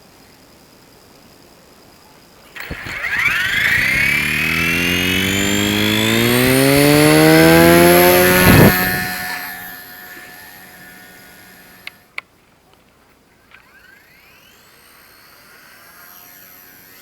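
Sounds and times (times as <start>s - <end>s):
motor revving up: 2.6s - 12.0s, 13.6s - 17.0s.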